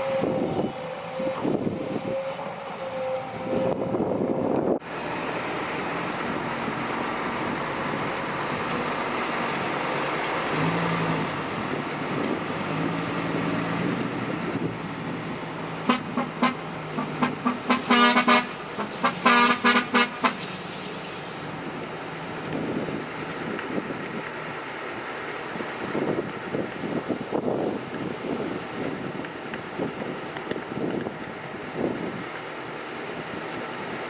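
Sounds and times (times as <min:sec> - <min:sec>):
vehicle horn toots: 0:00.0 - 0:04.0, 0:15.8 - 0:20.6
diesel engine running: 0:00.0 - 0:34.0.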